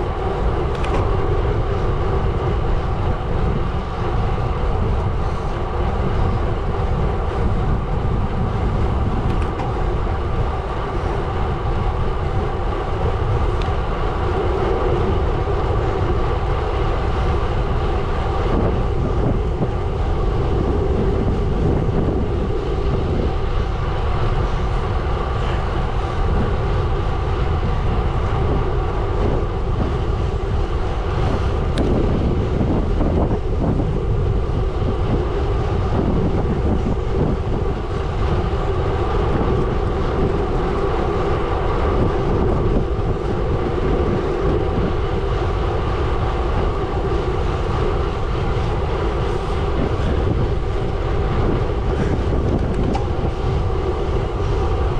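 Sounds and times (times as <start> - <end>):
bike tyres rolling on gravel: 0.0 - 54.9.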